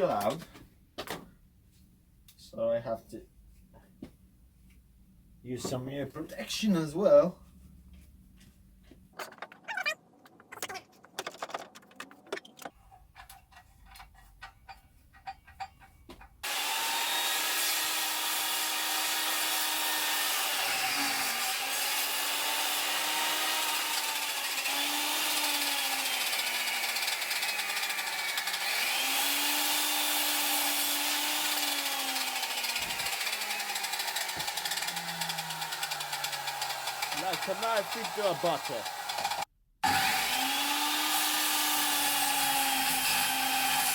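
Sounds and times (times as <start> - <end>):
circular saw cutting wood: 16.4 - 43.9.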